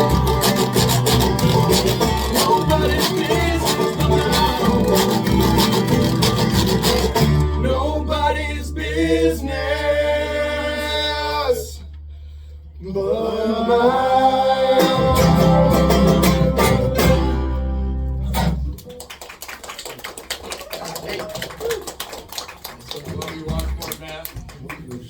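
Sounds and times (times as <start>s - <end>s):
banjo strumming and plucking: 0.0s - 8.4s, 14.4s - 18.9s
guitar: 0.0s - 12.2s, 14.1s - 19.0s
steady low bass: 0.0s - 18.8s
man singing: 2.2s - 5.2s, 7.6s - 11.8s, 12.8s - 16.2s.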